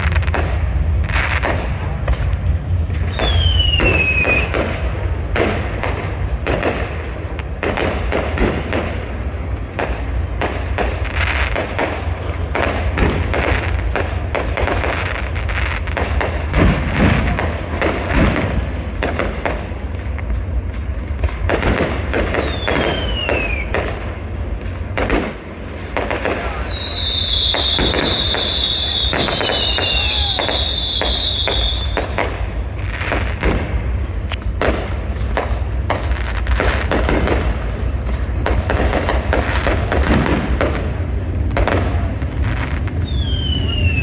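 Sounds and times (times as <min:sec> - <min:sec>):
low rumble: 0:00.0 - 0:22.4
fireworks bangs and crackles: 0:00.0 - 0:44.0
falling firework whistle: 0:02.9 - 0:06.8, 0:21.8 - 0:24.1, 0:25.2 - 0:34.0, 0:41.5 - 0:44.0
high hissing whistle: 0:03.1 - 0:04.5, 0:25.8 - 0:32.2, 0:43.0 - 0:44.0.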